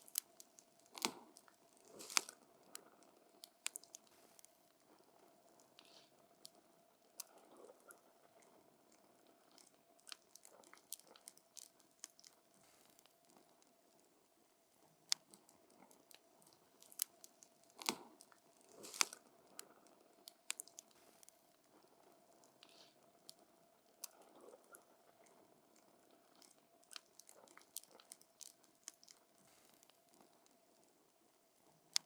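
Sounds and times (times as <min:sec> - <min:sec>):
wood fire crackling: 0:00.0 - 0:02.8, 0:16.5 - 0:19.7.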